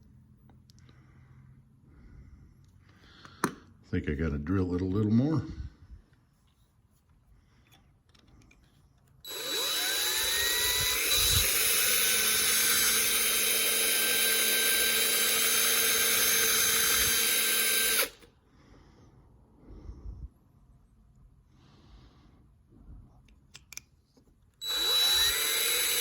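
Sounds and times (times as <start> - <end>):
electric drill spinning: 9.2 - 18.3, 24.6 - 26.0.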